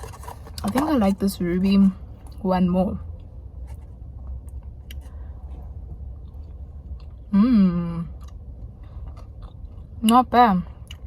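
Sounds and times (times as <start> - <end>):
low steady rumble: 0.0 - 11.0
person chewing: 3.7 - 7.3, 8.1 - 10.0, 10.8 - 11.0.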